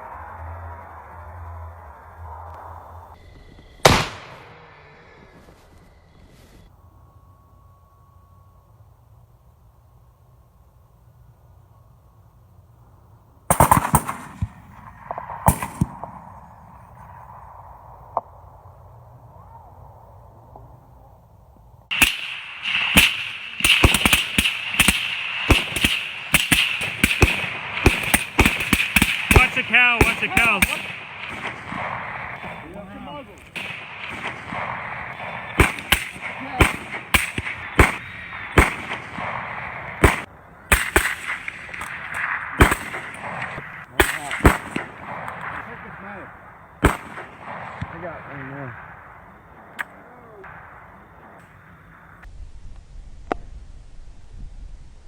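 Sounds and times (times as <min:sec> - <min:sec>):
rifle shots: 0:03.8 - 0:04.7, 0:13.5 - 0:17.4, 0:21.9 - 0:49.8
rapid gunfire: 0:13.5 - 0:14.6, 0:21.9 - 0:32.6, 0:33.5 - 0:45.3.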